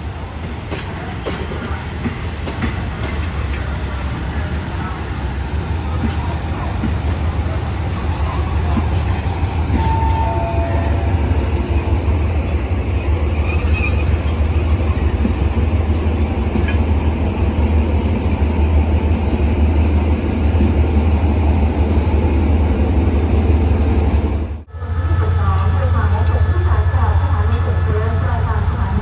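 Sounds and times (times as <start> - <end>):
diesel locomotive engine humming: 0.0 - 29.0.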